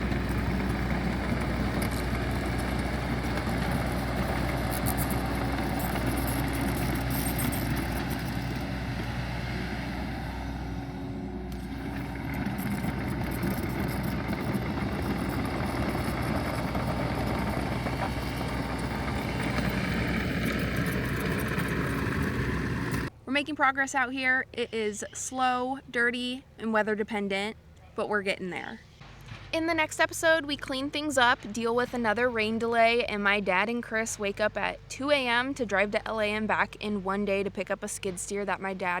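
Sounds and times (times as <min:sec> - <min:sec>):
heavy machinery engine running: 0:00.0 - 0:23.1.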